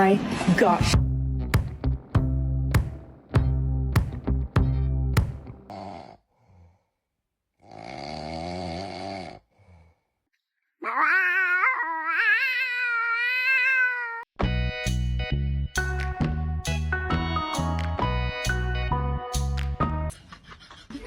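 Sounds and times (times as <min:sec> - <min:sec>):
dog howling: 0:10.8 - 0:14.2.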